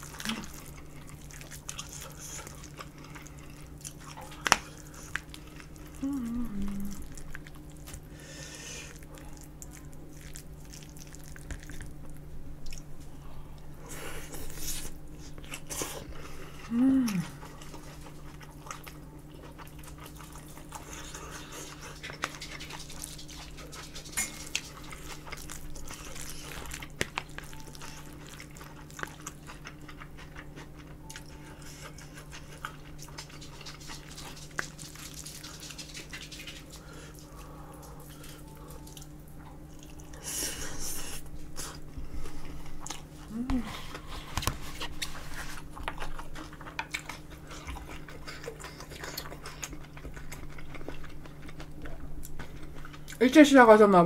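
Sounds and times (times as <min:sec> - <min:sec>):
close chewing and biting: 0:00.0 - 0:08.2, 0:08.8 - 0:53.4
steady low hum: 0:00.0 - 0:54.0
falling voice hum: 0:05.9 - 0:07.1, 0:16.6 - 0:17.5, 0:43.2 - 0:44.0.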